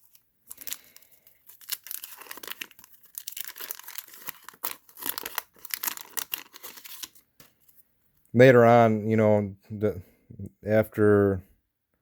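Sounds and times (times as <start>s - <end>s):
wax paper wrapper crinkling: 0.0s - 7.8s.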